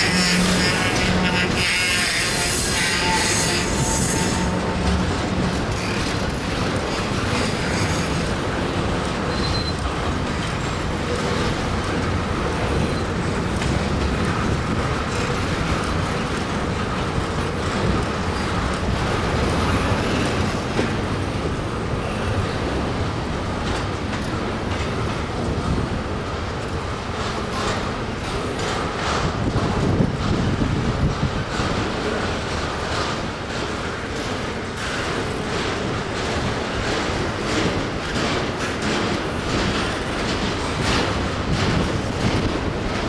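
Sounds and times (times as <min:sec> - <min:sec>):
wheel squeal: 0:00.0 - 0:08.5, 0:09.3 - 0:09.8, 0:18.2 - 0:20.8
freight train wheels rumbling: 0:00.0 - 0:43.0
rail clicks: 0:00.0 - 0:43.0.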